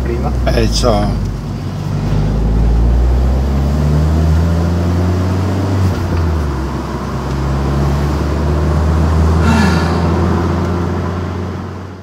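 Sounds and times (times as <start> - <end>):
car engine droning in cabin: 0.0 - 12.0.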